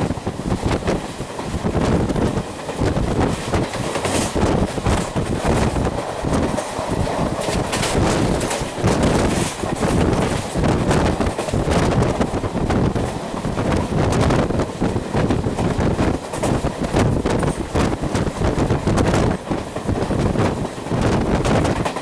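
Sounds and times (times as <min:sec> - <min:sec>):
train wheel and rail noise: 0:00.0 - 0:22.0
wind rushing past microphone: 0:00.0 - 0:22.0.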